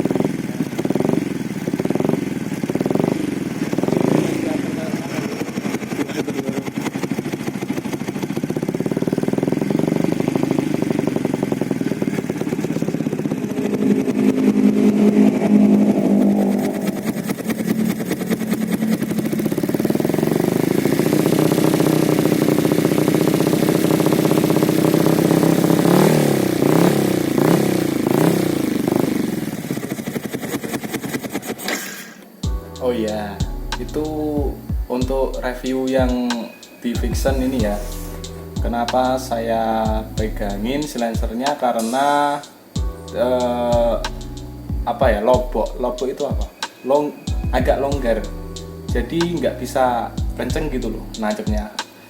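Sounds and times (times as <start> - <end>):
motorcycle engine revving: 0.0 - 52.0
throttle blips: 8.7 - 24.7.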